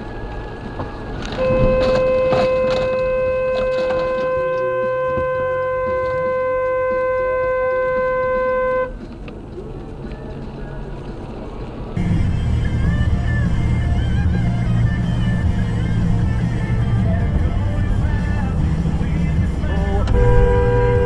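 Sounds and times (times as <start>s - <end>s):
car horn blast: 1.4s - 9.0s, 19.6s - 21.0s.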